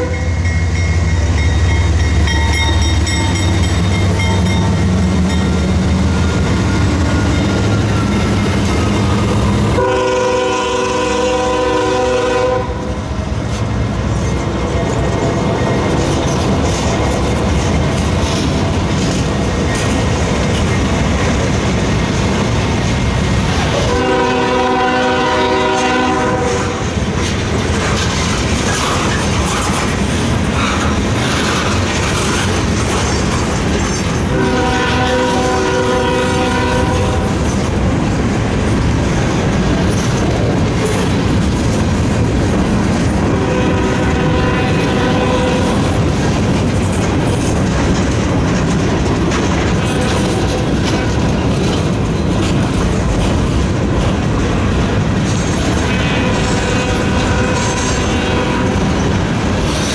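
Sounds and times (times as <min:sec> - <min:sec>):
locomotive horn blasts: 0:00.0 - 0:00.5, 0:09.7 - 0:13.0, 0:23.8 - 0:26.9, 0:34.3 - 0:37.4, 0:43.2 - 0:46.0, 0:55.8 - 0:59.0
freight train rumbling on rails: 0:00.0 - 0:59.9.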